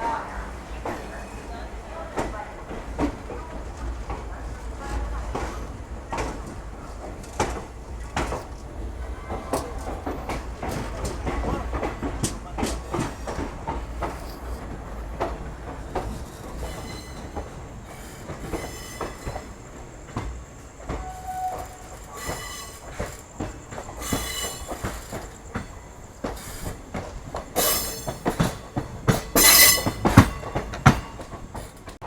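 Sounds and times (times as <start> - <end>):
train wheels knocking over rail joints: 2.0 - 32.0
high-pitched wheel squeal: 16.5 - 17.6, 20.9 - 23.2, 29.4 - 30.1.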